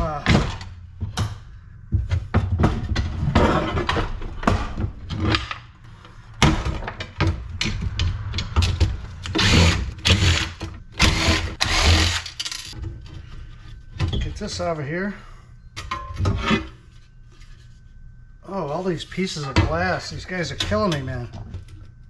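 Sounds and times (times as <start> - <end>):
metal parts knocking and clattering: 6.6 - 12.9.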